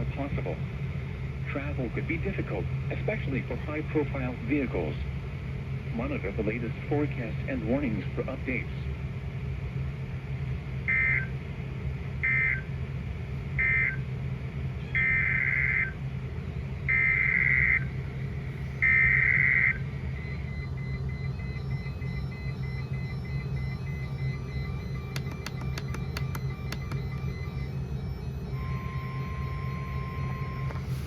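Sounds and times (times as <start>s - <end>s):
steady low hum: 17.8s - 31.0s.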